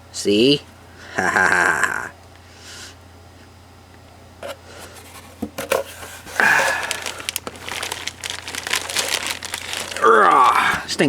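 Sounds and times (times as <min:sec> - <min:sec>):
packing rustling and crinkling: 0:04.4 - 0:11.0.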